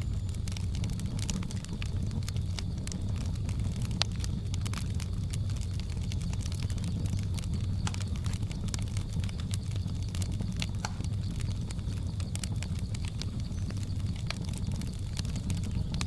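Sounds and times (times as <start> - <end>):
wood fire crackling: 0.0 - 16.0
faint jungle ambience: 5.6 - 16.0.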